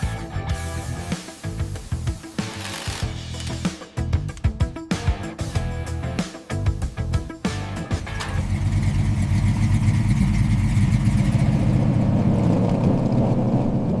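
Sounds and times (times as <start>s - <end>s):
music: 0.0s - 9.1s
car engine running: 7.5s - 14.0s.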